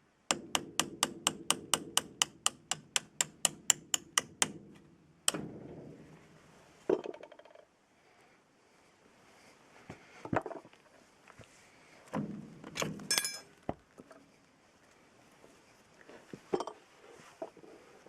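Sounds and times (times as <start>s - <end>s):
metal parts knocking and clinking: 12.8s - 13.5s
ringing metallic clink: 13.1s - 13.5s.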